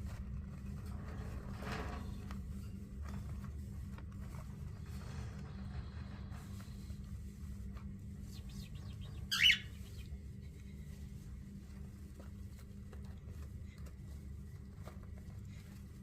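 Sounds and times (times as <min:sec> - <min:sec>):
small scratches and rustles: 0:00.0 - 0:16.0
bird harsh call: 0:09.0 - 0:10.0.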